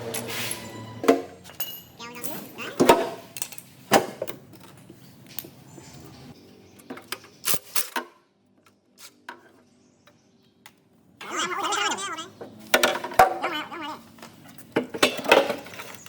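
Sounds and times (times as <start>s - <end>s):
metallic clinks of tools: 0.1s - 3.7s.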